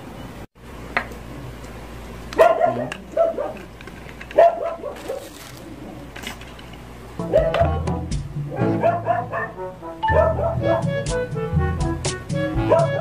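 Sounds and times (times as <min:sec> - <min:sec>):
dog barking: 0:02.4 - 0:03.7, 0:04.4 - 0:05.4, 0:07.3 - 0:07.8, 0:08.5 - 0:10.8, 0:12.6 - 0:13.0.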